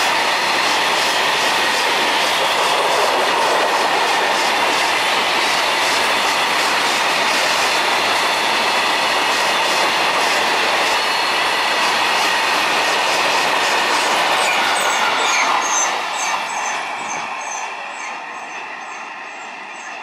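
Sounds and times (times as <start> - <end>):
freight train rumbling past: 0.0 - 20.0
short high squeaks: 14.4 - 19.0.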